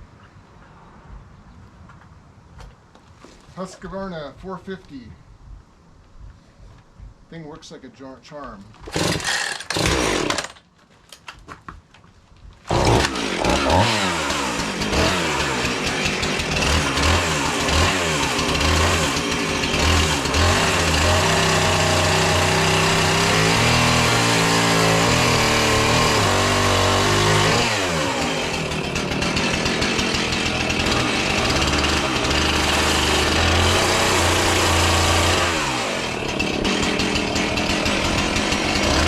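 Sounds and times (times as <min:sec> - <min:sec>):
chainsaw revving: 0:08.8 - 0:10.6, 0:12.7 - 0:39.0.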